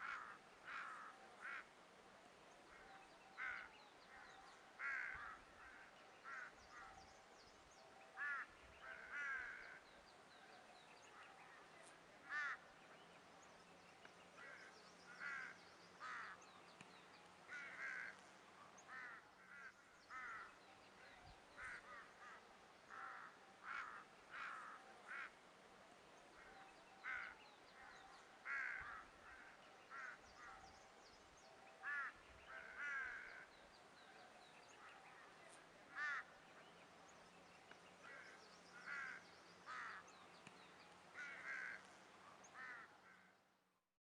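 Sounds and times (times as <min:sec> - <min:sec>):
birds calling: 0:26.4 - 0:43.3.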